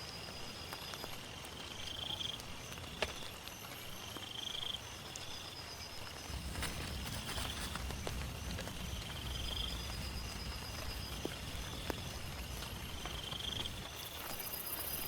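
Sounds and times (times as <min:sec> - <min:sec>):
rain on a tent: 0:00.0 - 0:15.0
low rumble: 0:06.2 - 0:14.4.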